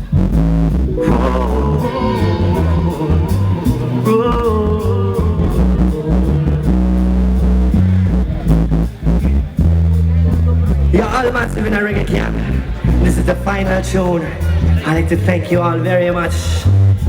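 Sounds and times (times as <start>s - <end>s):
reggae band playing: 0.7s - 10.9s.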